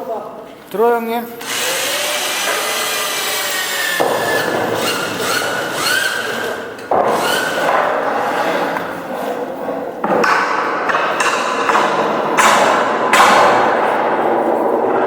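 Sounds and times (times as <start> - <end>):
electric chain hoist motor whining: 1.4 - 6.6.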